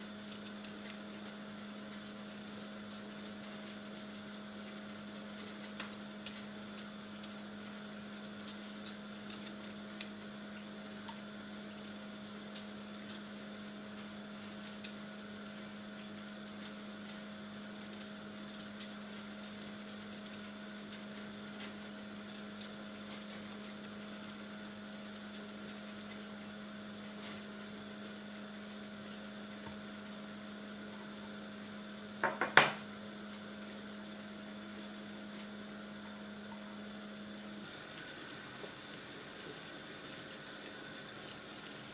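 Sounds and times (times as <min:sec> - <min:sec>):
kitchen appliance humming: 0:00.0 - 0:41.9
loud knocks: 0:32.2 - 0:32.8.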